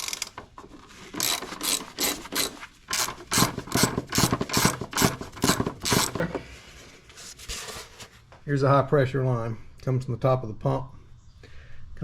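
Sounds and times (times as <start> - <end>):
ratchet wrench clicking: 0.0 - 0.4, 1.2 - 6.2.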